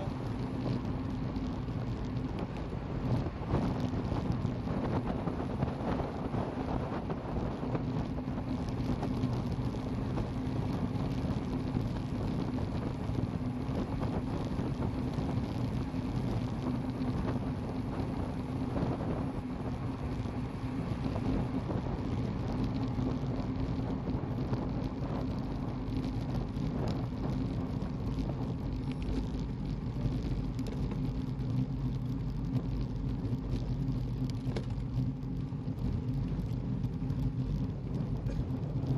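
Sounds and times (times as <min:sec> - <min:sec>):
road noise low hum: 0:00.0 - 0:38.9
wind rushing over microphone: 0:00.0 - 0:38.9.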